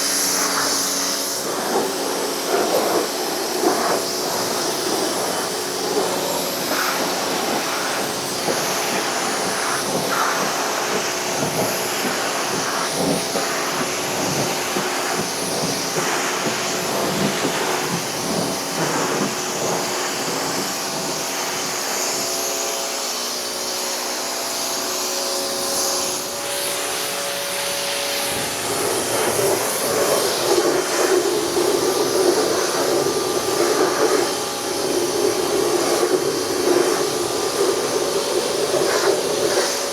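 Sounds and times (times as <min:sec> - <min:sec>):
pressure washer jet hissing: 0:00.0 - 0:39.9
pump motor humming: 0:00.0 - 0:39.9.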